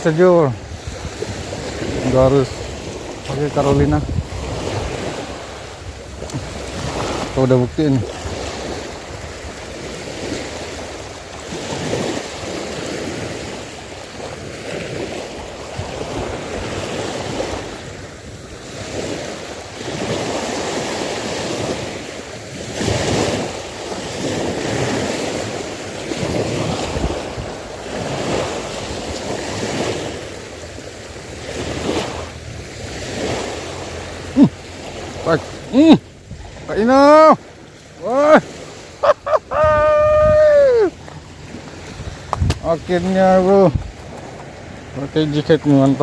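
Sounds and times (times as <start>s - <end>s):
sea waves washing: 0.0s - 46.0s
wind rumbling on microphone: 0.0s - 46.0s.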